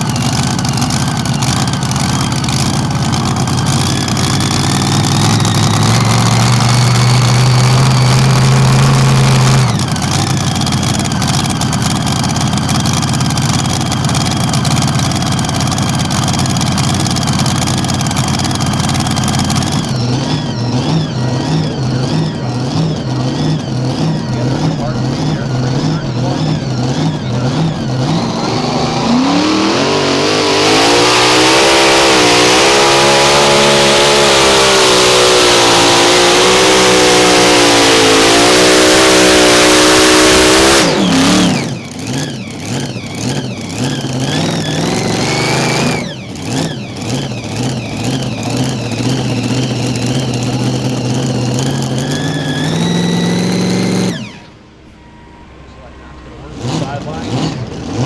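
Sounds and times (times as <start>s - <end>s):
tractor engine revving: 0.0s - 58.0s.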